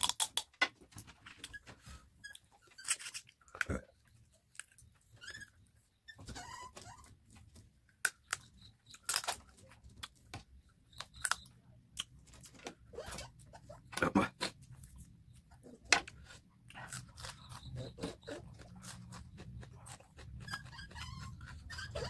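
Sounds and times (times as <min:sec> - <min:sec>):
man chewing chicken: 0:16.0 - 0:22.0.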